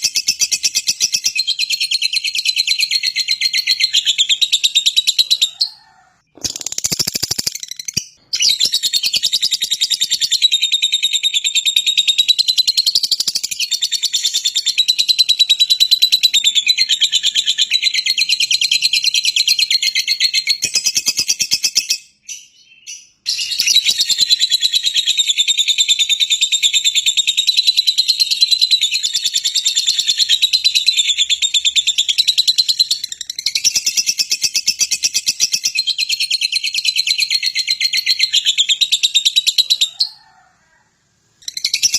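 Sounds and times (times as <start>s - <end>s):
bird chattering shrill chirps: 2.8s - 10.5s.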